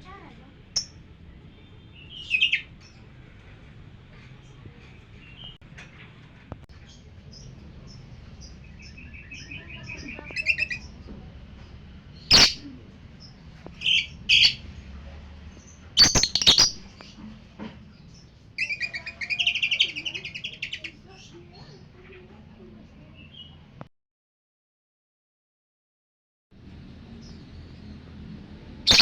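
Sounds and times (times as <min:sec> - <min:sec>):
lovebirds chirping and chattering: 0:00.0 - 0:23.8
sharp bird calls: 0:12.2 - 0:12.7, 0:16.0 - 0:17.2.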